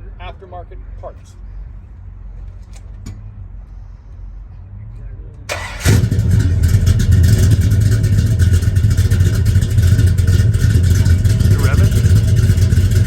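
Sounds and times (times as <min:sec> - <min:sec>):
car engine idling loudly: 0:05.5 - 0:13.0
engine starter cranking: 0:05.5 - 0:13.0.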